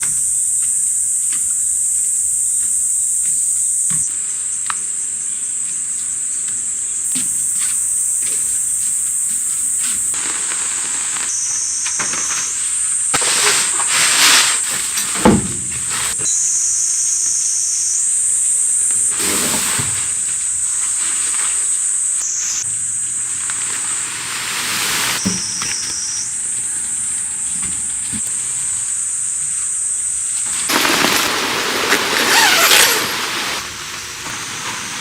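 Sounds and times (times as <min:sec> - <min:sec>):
forest insects chorus: 0:00.0 - 0:35.0
rustling bursts: 0:12.5 - 0:16.2, 0:30.4 - 0:35.0.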